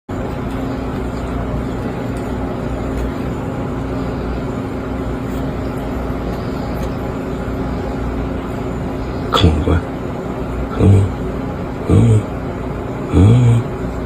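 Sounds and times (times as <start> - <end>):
machine rumble with low hum: 0.1 - 14.0.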